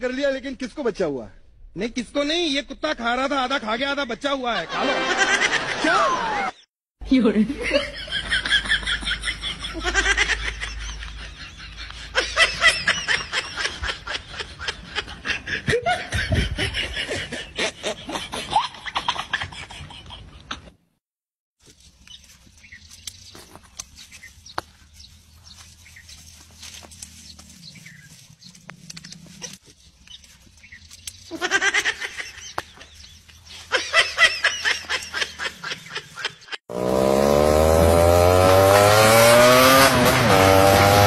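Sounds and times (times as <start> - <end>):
boy laughing hard: 4.6 - 6.5, 7.6 - 20.7, 31.3 - 32.6, 33.5 - 36.6.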